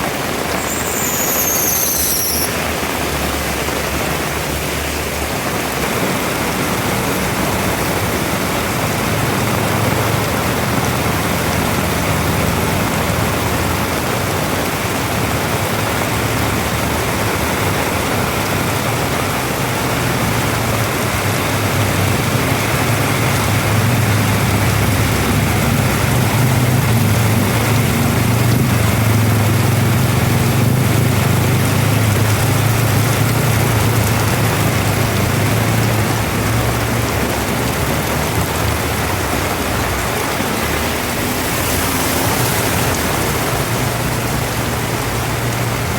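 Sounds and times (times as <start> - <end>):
heavy rain pouring: 0.0 - 45.9.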